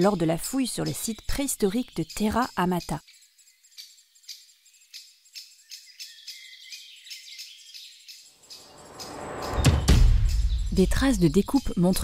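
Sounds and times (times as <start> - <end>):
bird trill: 0.0 - 12.0
small birds chirping faintly: 0.0 - 12.0.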